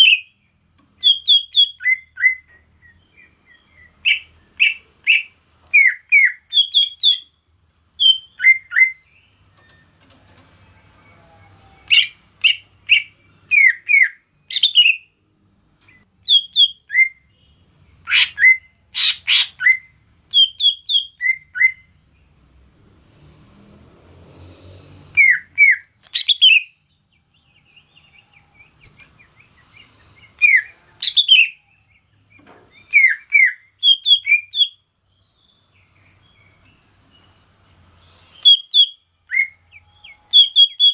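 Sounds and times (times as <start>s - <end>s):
bird whistled calls: 0.0s - 0.3s, 1.0s - 7.3s, 8.0s - 9.0s, 11.8s - 15.0s, 16.2s - 17.2s, 18.0s - 21.9s, 25.1s - 26.8s, 29.8s - 31.6s, 32.8s - 34.8s, 38.3s - 40.9s.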